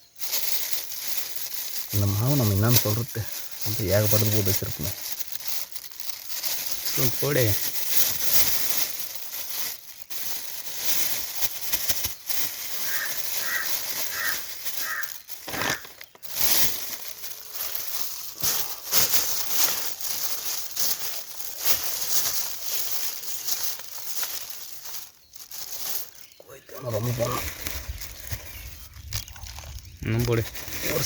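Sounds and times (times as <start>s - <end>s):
plastic packet crinkling: 0.0s - 31.0s
bird calling: 12.8s - 16.2s.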